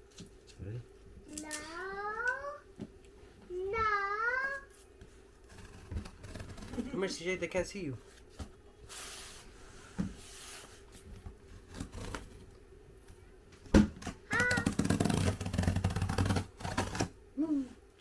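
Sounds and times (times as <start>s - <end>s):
cardboard crackling and scraping: 4.5s - 12.5s, 13.8s - 17.2s.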